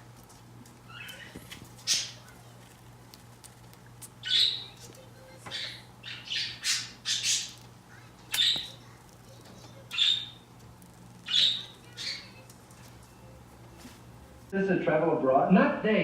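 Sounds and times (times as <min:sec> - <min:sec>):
parrot squawking: 0:00.9 - 0:02.5, 0:04.2 - 0:10.6, 0:11.2 - 0:12.5.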